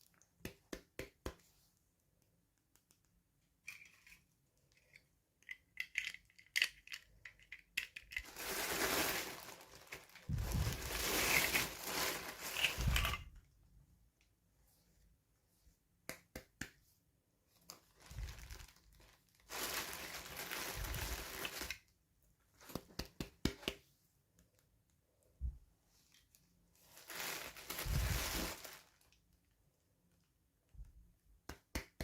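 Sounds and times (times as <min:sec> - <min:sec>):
small clicks and taps: 0:00.0 - 0:03.2
packaging crinkling and tearing: 0:08.1 - 0:13.2, 0:17.7 - 0:21.8, 0:26.8 - 0:29.1.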